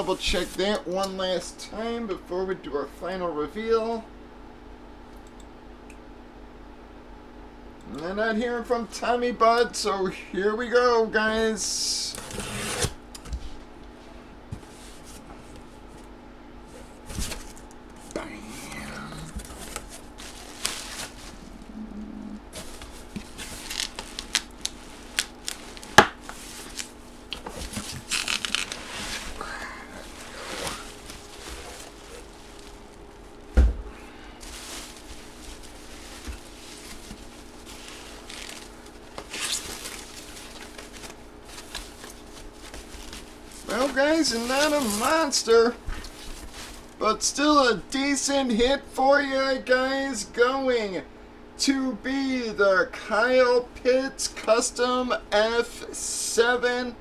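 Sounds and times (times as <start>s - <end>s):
packaging rustling: 16.8s - 18.2s, 19.3s - 21.7s, 22.5s - 47.0s.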